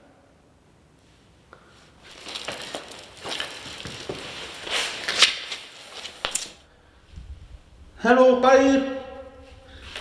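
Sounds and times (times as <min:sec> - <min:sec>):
crunching and rustling: 0:02.0 - 0:06.6.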